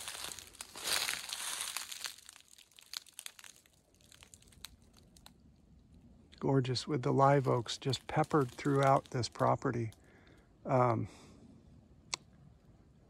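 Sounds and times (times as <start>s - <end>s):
footsteps crunching through dry leaves: 0.0s - 5.1s, 7.2s - 9.5s.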